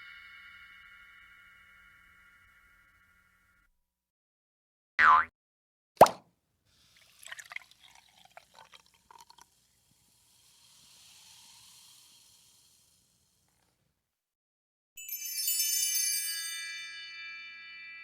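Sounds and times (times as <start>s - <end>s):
liquid dripping and splashing: 6.8s - 10.0s
soft hiss: 6.8s - 14.0s.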